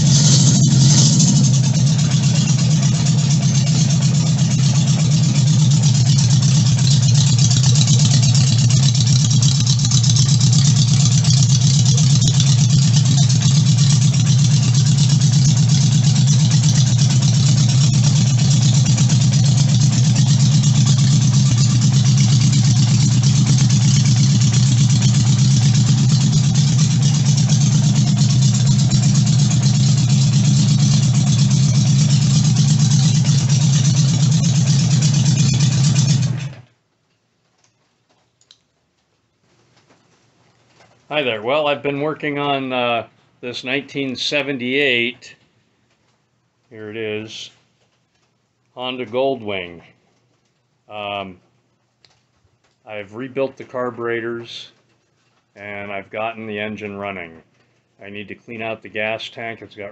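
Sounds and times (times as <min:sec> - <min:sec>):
motorcycle engine running steadily: 0:00.0 - 0:36.6.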